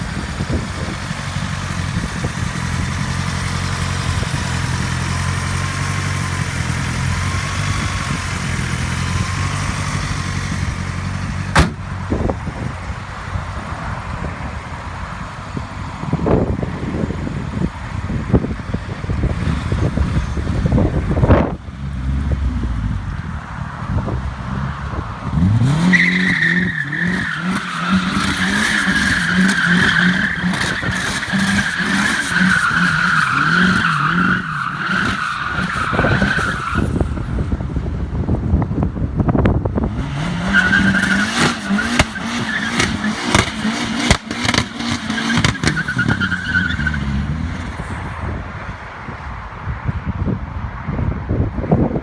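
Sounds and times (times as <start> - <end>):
car engine revving hard: 0.0 - 12.3, 24.0 - 37.2, 39.8 - 48.0
high squeal: 25.9 - 37.3.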